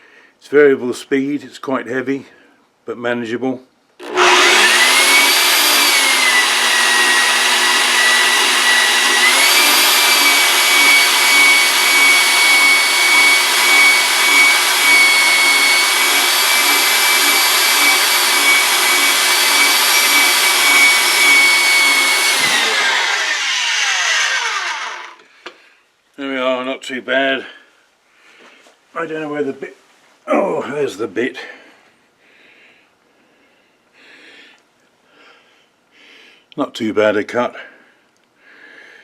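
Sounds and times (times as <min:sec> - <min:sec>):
bandsaw cutting metal tube: 0:04.0 - 0:25.2.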